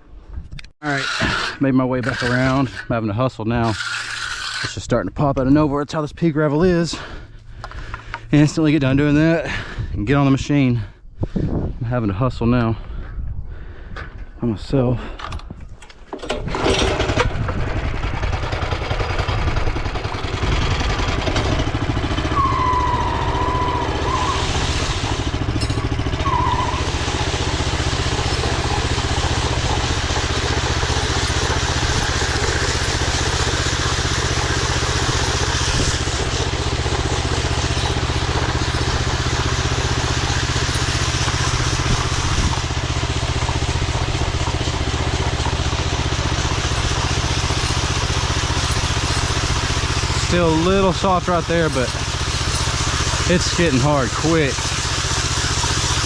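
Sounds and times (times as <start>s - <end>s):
power trowel engine running: 0.8s - 4.9s, 16.1s - 56.0s.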